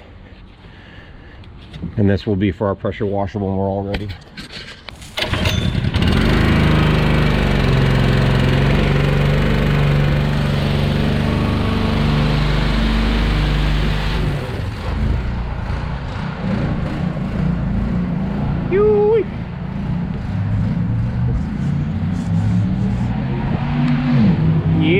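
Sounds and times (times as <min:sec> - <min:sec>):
small gasoline engine running: 0:05.2 - 0:15.9.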